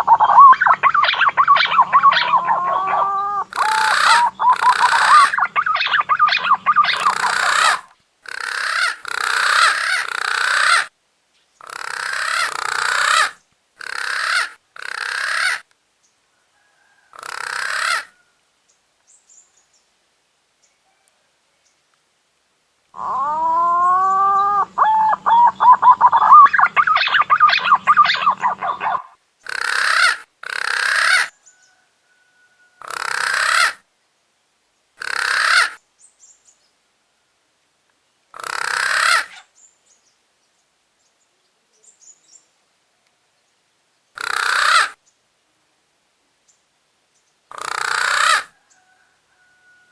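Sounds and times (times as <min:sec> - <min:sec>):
pigeon whistled warbling call: 0:00.0 - 0:07.8, 0:23.0 - 0:29.1
harsh pigeon calls: 0:00.0 - 0:07.9, 0:23.0 - 0:31.2.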